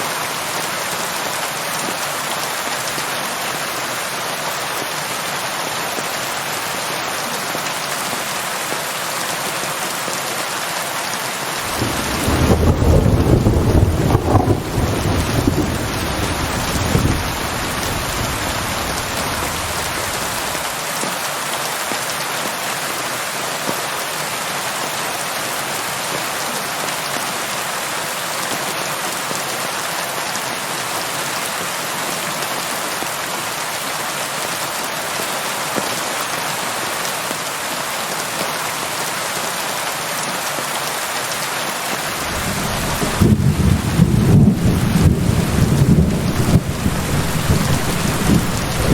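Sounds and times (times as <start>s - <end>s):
heavy rain falling: 0.0s - 48.9s
low thunder rumble: 11.6s - 20.6s, 42.1s - 48.9s.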